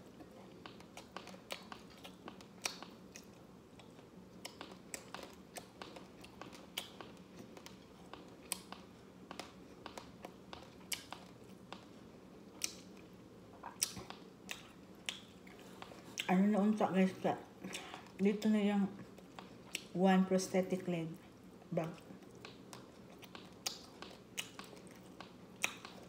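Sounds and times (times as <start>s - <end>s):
crunchy chewing: 0.0s - 16.4s, 21.2s - 26.0s
faint steady hum: 0.0s - 26.0s.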